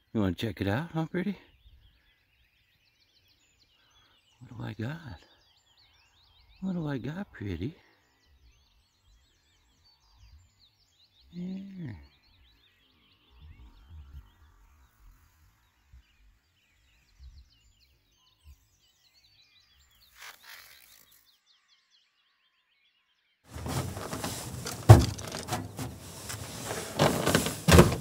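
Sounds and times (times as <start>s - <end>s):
loud rustling: 23.5s - 28.0s
soft handling thumps: 23.5s - 28.0s.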